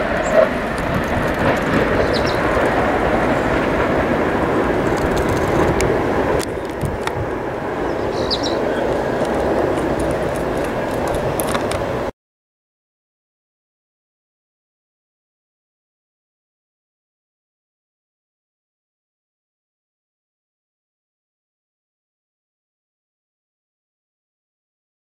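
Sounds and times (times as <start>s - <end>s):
electric train rushing: 0.0s - 12.1s.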